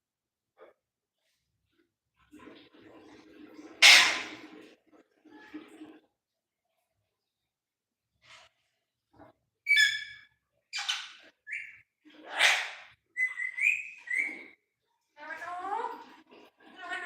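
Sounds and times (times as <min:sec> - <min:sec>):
parrot whistles and squawks: 0:03.8 - 0:04.4, 0:09.7 - 0:14.6.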